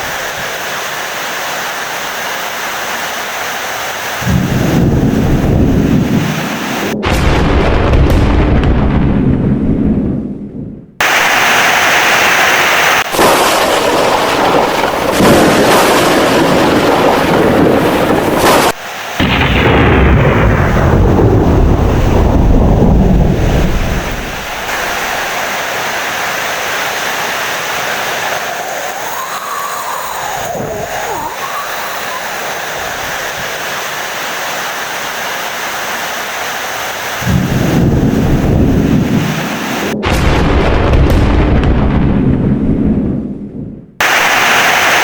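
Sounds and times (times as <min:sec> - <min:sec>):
heavy rain: 0:00.0 - 0:07.2, 0:11.0 - 0:41.5, 0:44.0 - 0:45.0
rolling thunder: 0:04.2 - 0:11.8, 0:13.0 - 0:31.8, 0:37.2 - 0:44.6.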